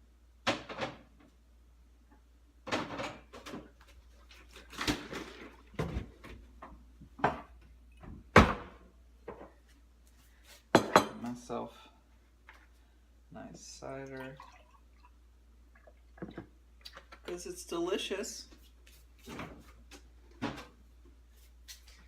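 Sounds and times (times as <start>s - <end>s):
kitchen knocks and clunks: 0.4s - 1.3s, 2.6s - 3.8s, 4.7s - 9.6s, 10.7s - 11.3s, 20.3s - 20.8s.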